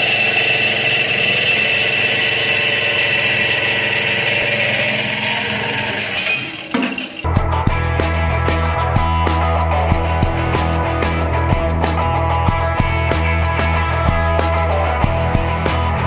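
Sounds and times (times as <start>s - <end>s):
band saw whine: 0.0s - 16.0s
rock music with guitar: 6.7s - 16.0s.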